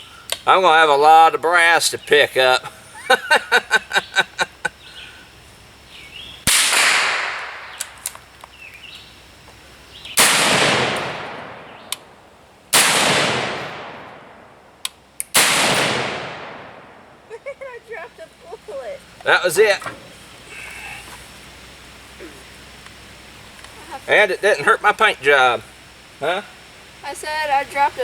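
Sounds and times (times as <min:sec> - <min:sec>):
rifle shots with echo: 0:06.5 - 0:08.0, 0:10.2 - 0:14.6, 0:15.3 - 0:17.2.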